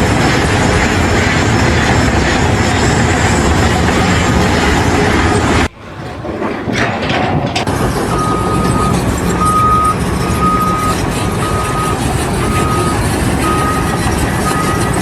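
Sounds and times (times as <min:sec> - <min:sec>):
engine running: 0:00.0 - 0:15.0
reversing alarm beeping: 0:06.7 - 0:15.0.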